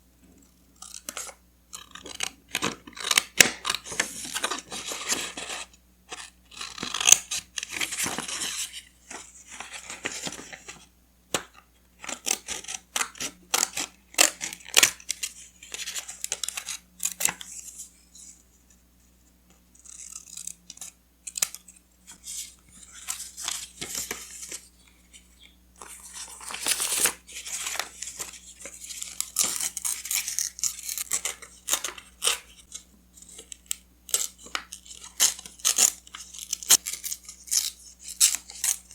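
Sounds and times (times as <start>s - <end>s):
paper rustling and tearing: 25.8s - 32.7s.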